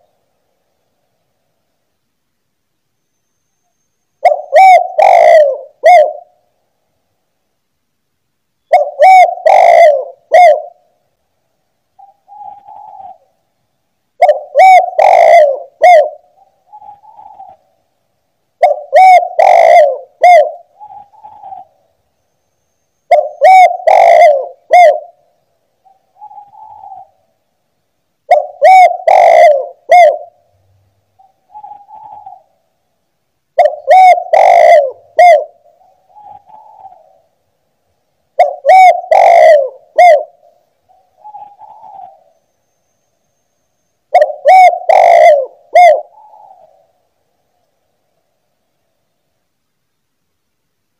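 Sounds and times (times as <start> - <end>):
dove cooing: 4.2 - 6.5, 8.7 - 10.9, 12.0 - 13.4, 14.2 - 17.7, 18.6 - 21.9, 23.1 - 25.2, 25.8 - 27.3, 28.3 - 30.5, 31.2 - 32.6, 33.6 - 37.3, 38.4 - 42.4, 44.1 - 47.0.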